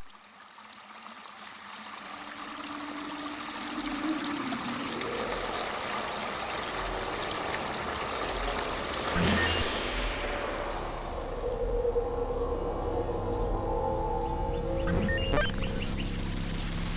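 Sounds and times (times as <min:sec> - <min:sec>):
running water: 0:00.0 - 0:11.4.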